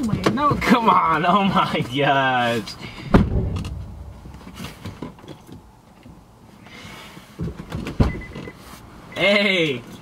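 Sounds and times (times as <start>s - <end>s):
car door shutting: 7.4s - 8.5s.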